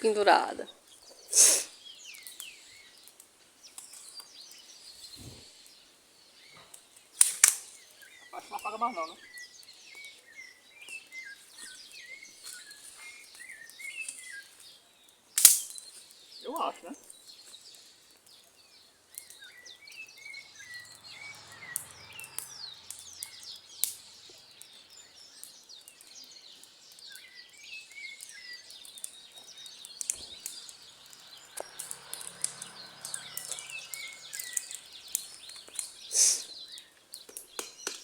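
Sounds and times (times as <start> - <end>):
burning wood crackling: 0.0 - 38.0
loud hiss: 1.3 - 1.8, 36.0 - 36.6
birds chirping and calling: 7.6 - 14.8, 15.5 - 38.0.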